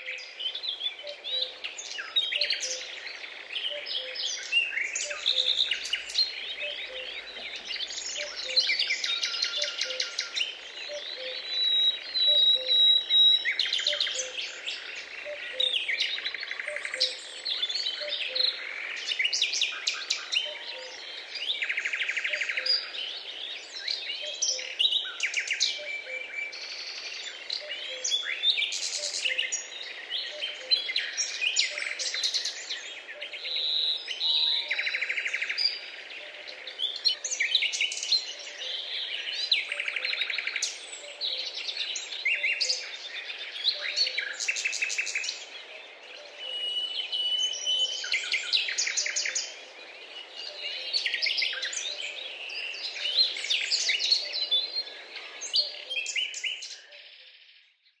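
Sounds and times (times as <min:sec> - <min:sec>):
birds singing and chirping: 0:00.0 - 0:58.0.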